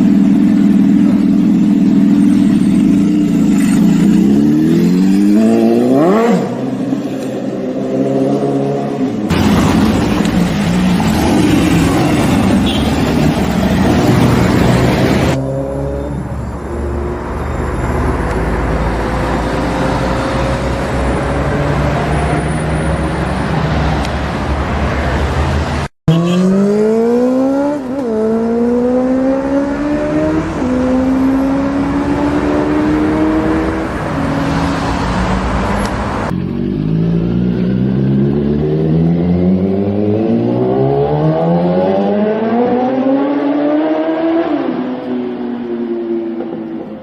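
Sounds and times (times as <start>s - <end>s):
motorcycle engine accelerating: 0.0s - 6.9s, 26.1s - 34.6s, 36.2s - 47.0s.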